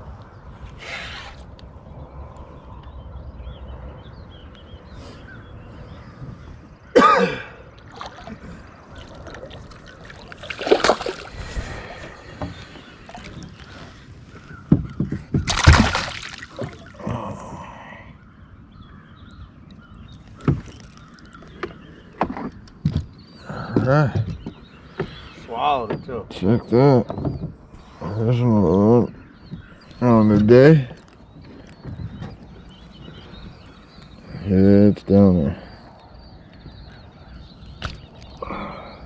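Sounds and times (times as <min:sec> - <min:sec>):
knocks and clicks in boat: 0:12.3 - 0:17.6, 0:19.6 - 0:27.8, 0:29.1 - 0:34.1.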